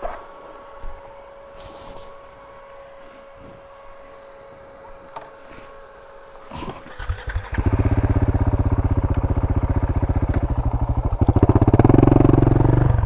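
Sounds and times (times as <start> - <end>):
motorcycle engine running: 6.2 - 13.0.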